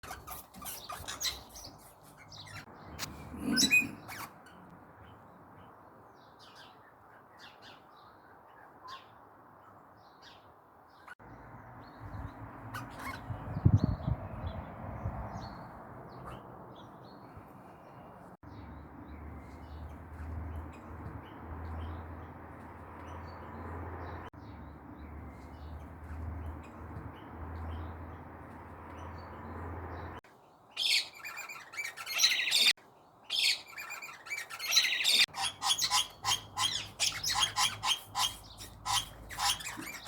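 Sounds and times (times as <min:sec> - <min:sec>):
parrots squawking and chirping: 0:00.0 - 0:04.7, 0:12.6 - 0:13.4, 0:30.8 - 0:32.7, 0:33.3 - 0:40.0.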